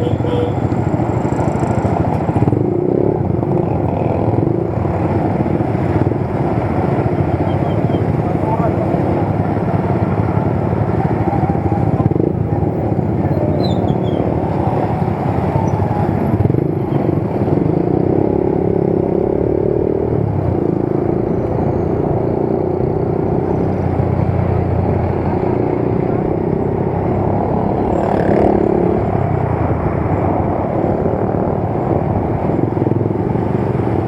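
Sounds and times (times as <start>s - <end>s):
motorcycle engine running: 0.0s - 21.1s
wind and road noise: 0.0s - 34.0s.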